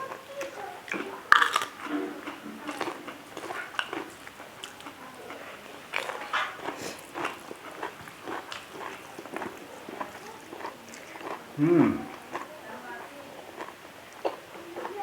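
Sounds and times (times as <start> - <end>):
wet chewing sounds: 0.0 - 15.0.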